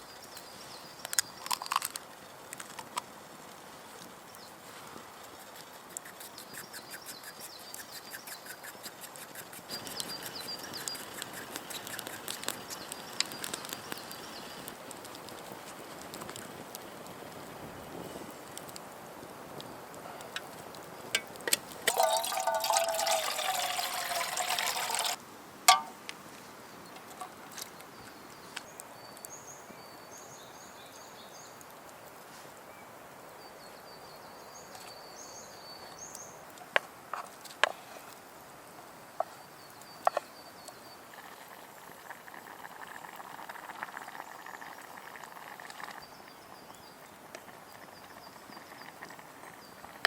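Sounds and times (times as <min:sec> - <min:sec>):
small birds chirping: 0:04.2 - 0:14.8, 0:44.0 - 0:50.0
liquid pouring into vessel: 0:21.8 - 0:25.9.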